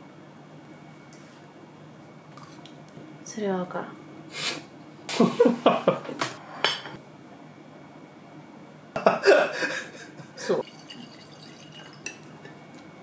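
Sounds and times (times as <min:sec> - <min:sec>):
dishes and cutlery clinking: 0:06.6 - 0:07.0.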